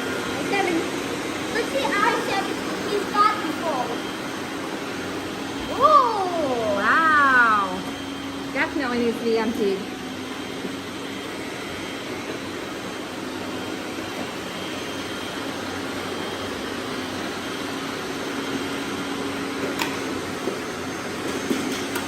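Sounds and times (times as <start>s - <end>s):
robot vacuum motors whirring: 0.0s - 22.0s.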